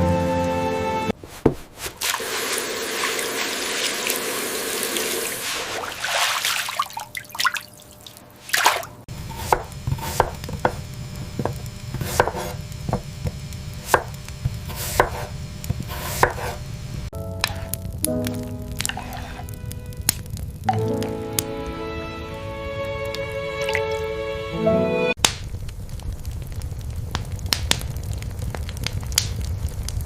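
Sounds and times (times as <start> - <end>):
rain hissing: 2.0 - 6.4, 9.0 - 30.0
knife chopping on wooden board: 9.3 - 16.6.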